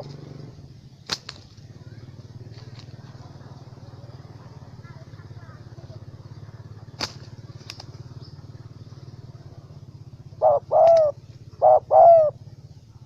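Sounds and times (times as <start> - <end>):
dove cooing: 0.0 - 0.8, 1.7 - 13.0
low pulsing hum: 0.0 - 13.0.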